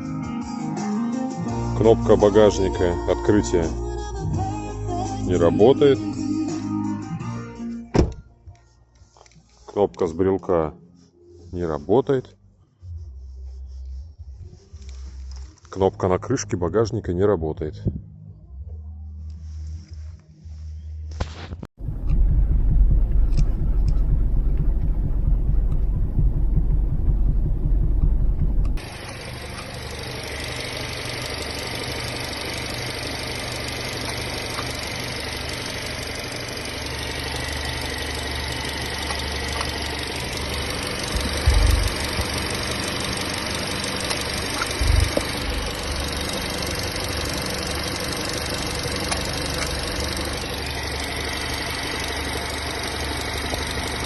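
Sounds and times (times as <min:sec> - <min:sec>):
loud low rumble: 0:21.8 - 0:28.8, 0:40.2 - 0:52.6
short low thumps: 0:21.8 - 0:28.8, 0:41.0 - 0:42.8, 0:44.7 - 0:46.9
car engine idling: 0:21.8 - 0:54.0.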